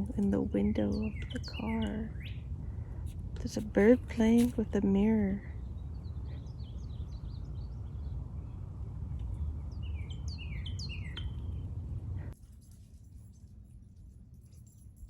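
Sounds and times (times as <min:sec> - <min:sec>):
small songbird chirping: 0:00.0 - 0:11.7
low outdoor rumble: 0:00.0 - 0:12.4.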